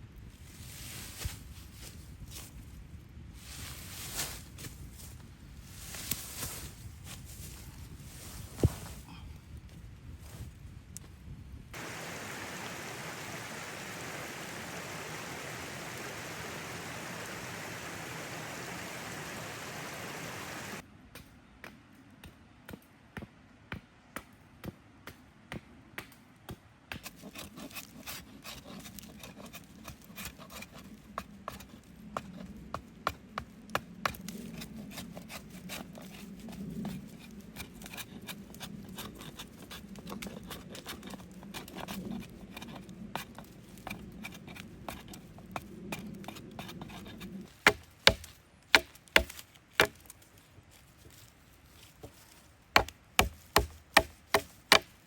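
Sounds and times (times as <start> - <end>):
chopping knocks on wood: 47.7 - 50.0, 52.8 - 54.9.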